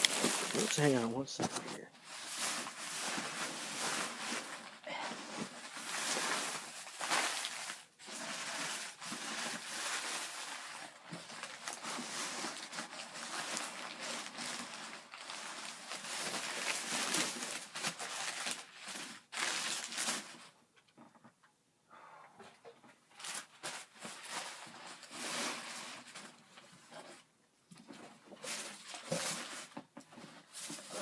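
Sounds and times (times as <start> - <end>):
packing material rustling and crinkling: 0.0 - 20.6, 23.1 - 27.2, 27.9 - 31.0.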